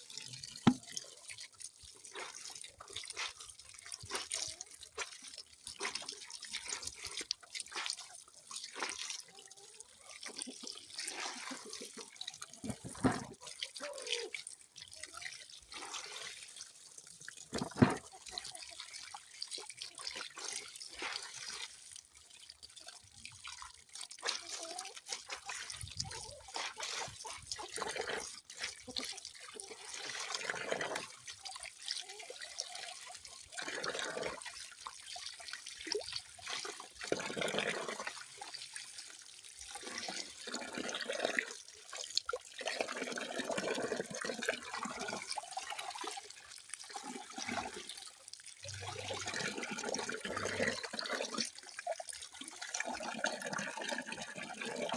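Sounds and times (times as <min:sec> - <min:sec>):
water trickling and splashing: 0:00.0 - 0:54.9
water dripping: 0:00.2 - 0:01.4, 0:41.9 - 0:54.2.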